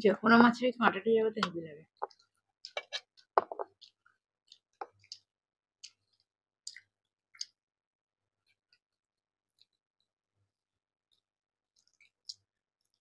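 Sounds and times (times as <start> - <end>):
chewing mouth clicks and smacks: 2.0 - 7.6, 11.7 - 13.0.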